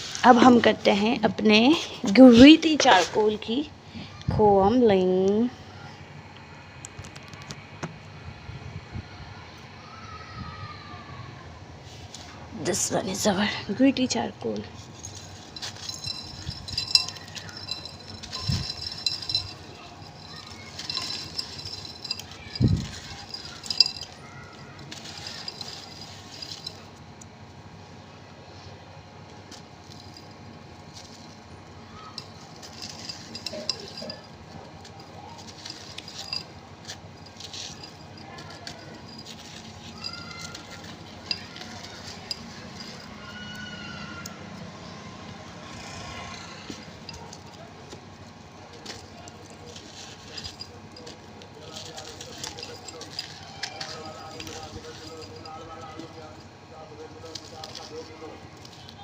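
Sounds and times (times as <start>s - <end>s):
charcoal crumbling and crunching: 14.7s - 27.2s, 29.4s - 43.6s, 47.0s - 56.4s
charcoal crumbled by hand: 14.8s - 27.3s.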